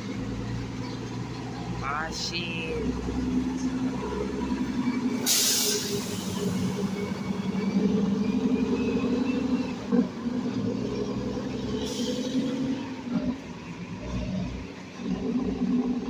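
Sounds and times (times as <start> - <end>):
truck diesel engine running: 0.0 - 16.0
air brake hiss: 5.2 - 6.5, 11.8 - 12.4.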